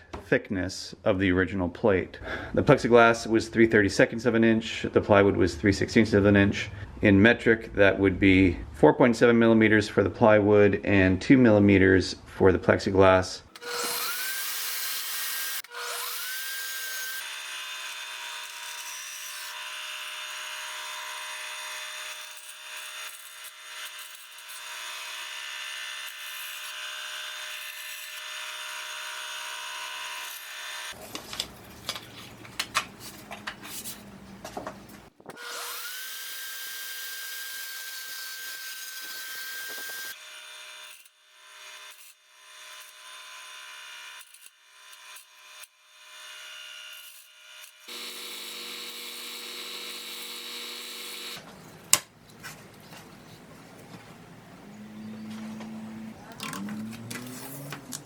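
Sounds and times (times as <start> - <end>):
high-speed power tool whine: 13.6 - 31.0, 35.3 - 51.4.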